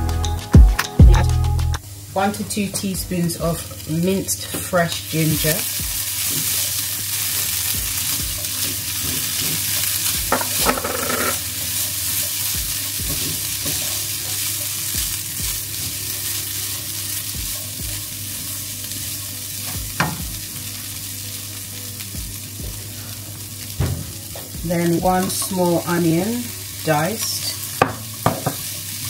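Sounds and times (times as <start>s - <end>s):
chickpeas sizzling in hot oil: 1.8s - 29.0s
spatula scraping pan: 8.4s - 14.8s.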